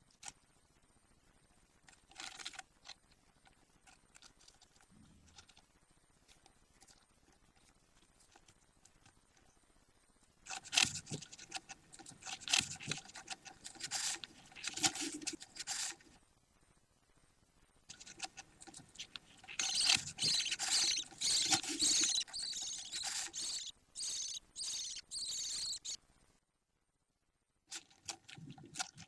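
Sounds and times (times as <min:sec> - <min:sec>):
budgie chicks chattering: 0:19.4 - 0:26.0.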